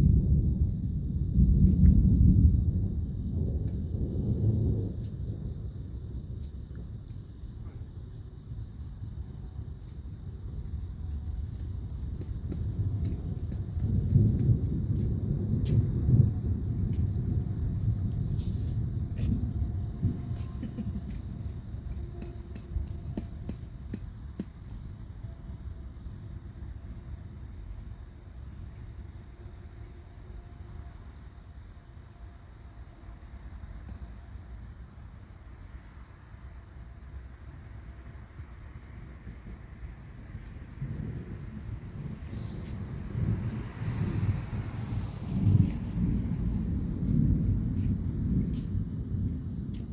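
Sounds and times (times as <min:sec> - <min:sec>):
rolling thunder: 0:00.0 - 0:29.1, 0:39.0 - 0:49.9
night insects chirring: 0:00.0 - 0:49.9.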